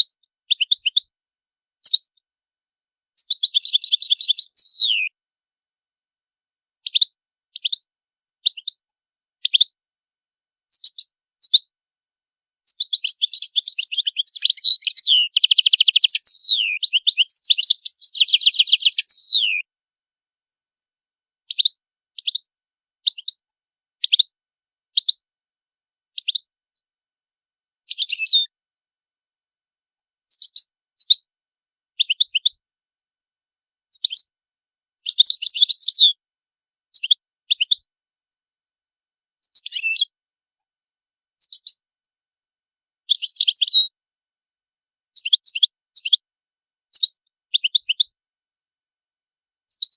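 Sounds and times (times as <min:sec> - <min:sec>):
goldfinch twittering: 0:12.7 - 0:19.6.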